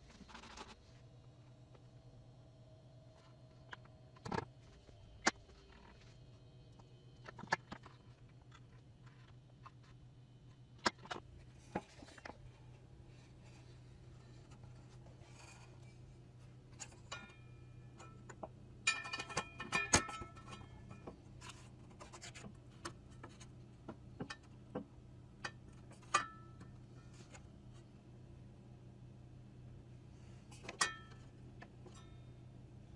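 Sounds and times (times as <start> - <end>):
low steady hum: 0.0 - 32.9
light clicks and ringing clinks: 18.9 - 21.0.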